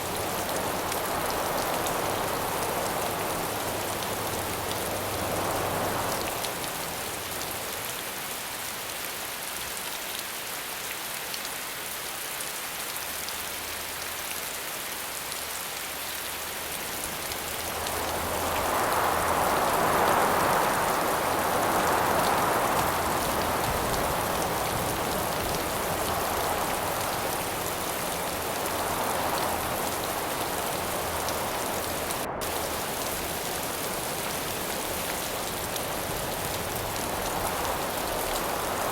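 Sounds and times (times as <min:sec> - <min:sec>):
gusts of wind: 0:00.0 - 0:07.8, 0:16.8 - 0:38.9
steady rainfall: 0:00.0 - 0:38.9.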